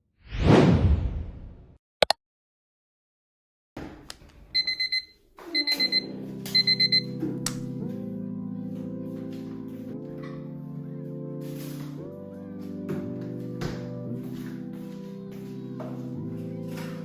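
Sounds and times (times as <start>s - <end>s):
electronic alarm beeping: 4.6s - 7.2s
soft background music: 5.5s - 17.0s.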